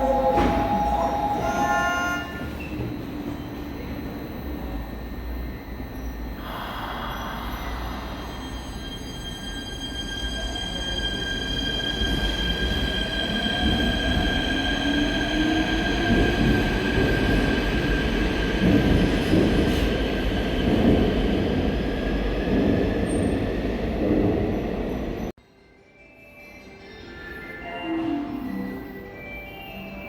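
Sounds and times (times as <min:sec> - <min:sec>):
electric train high squeal: 0:00.0 - 0:04.2, 0:05.2 - 0:18.4.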